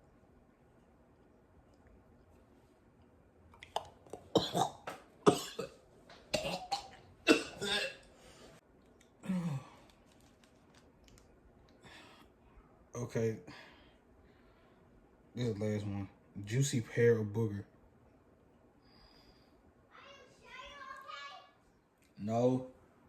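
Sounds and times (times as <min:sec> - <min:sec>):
man coughing: 0:04.3 - 0:08.0.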